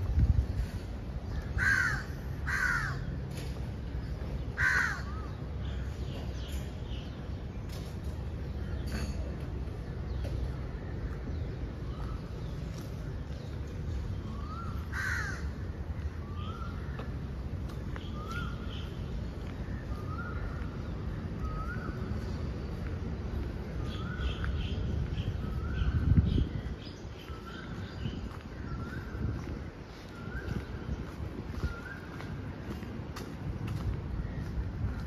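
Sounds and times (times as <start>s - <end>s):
bird calling: 13.9s - 22.6s.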